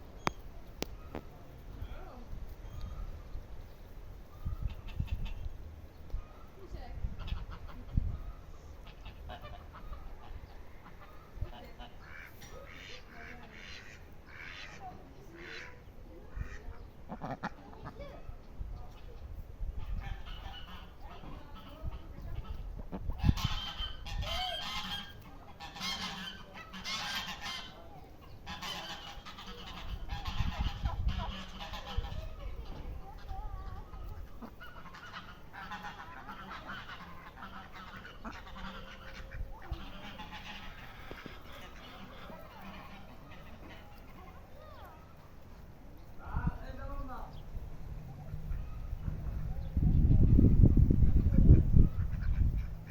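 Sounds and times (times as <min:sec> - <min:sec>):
poultry harsh calls: 0:04.4 - 0:05.6, 0:07.1 - 0:08.0, 0:08.8 - 0:18.1, 0:18.9 - 0:45.7, 0:51.2 - 0:52.9.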